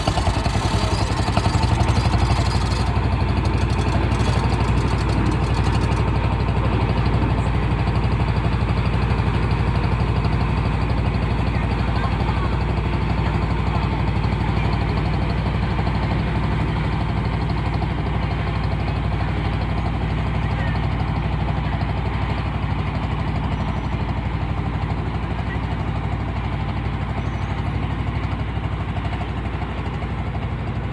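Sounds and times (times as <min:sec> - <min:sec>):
ferry engine throbbing: 0:00.0 - 0:20.8.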